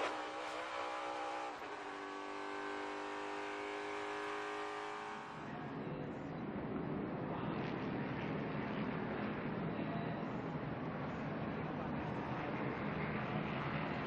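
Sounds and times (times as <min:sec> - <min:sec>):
race car engine at speed: 0:00.0 - 0:05.9.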